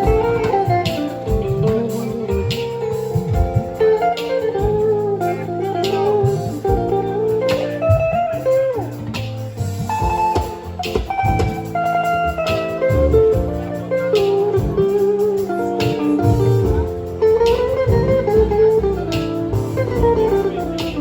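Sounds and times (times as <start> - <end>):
bass line: 0.0 - 21.0
guitar-led band music: 0.0 - 21.0
steady drum beat: 0.0 - 21.0.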